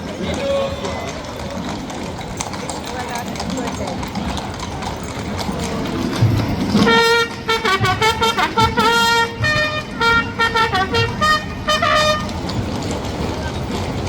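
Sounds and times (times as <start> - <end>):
crowd murmur: 0.0 - 14.0
brass marching tune: 5.8 - 13.8.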